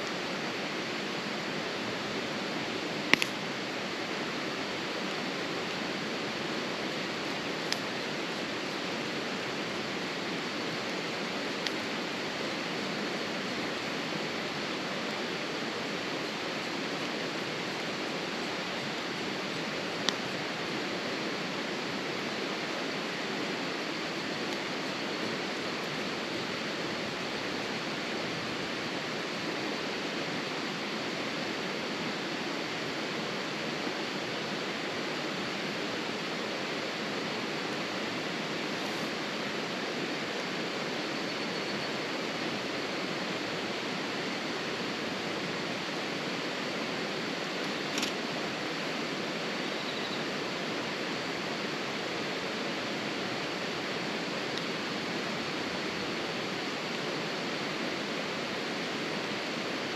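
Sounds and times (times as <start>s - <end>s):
steady rushing noise: 0.0s - 41.2s
sharp click: 47.9s - 48.2s.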